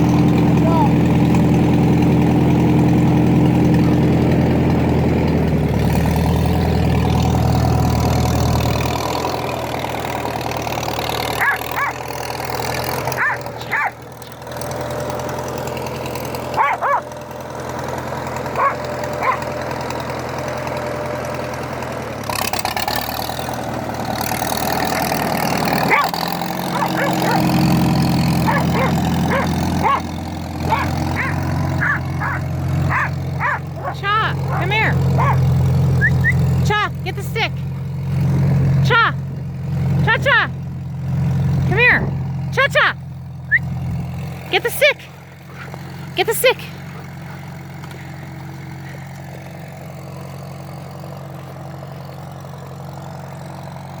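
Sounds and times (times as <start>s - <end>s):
tractor engine idling: 0.0s - 54.0s
dog barking and yipping: 11.4s - 12.0s, 13.1s - 14.0s, 16.5s - 17.1s, 18.5s - 19.5s, 25.8s - 27.6s, 28.4s - 36.4s, 44.6s - 47.5s.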